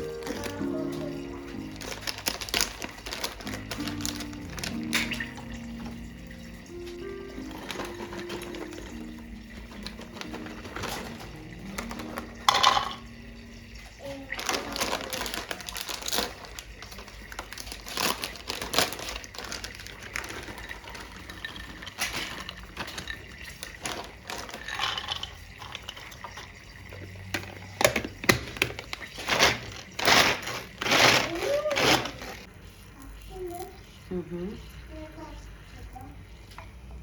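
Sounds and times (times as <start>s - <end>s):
things handled by hand: 0.0s - 13.2s, 14.4s - 32.5s.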